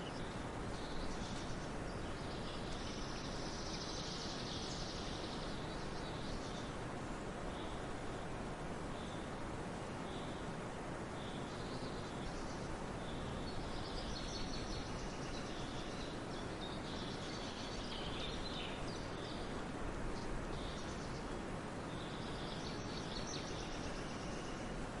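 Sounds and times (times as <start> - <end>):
bird chirping: 0.0 - 6.7, 11.2 - 19.5
steady background noise: 0.0 - 25.0.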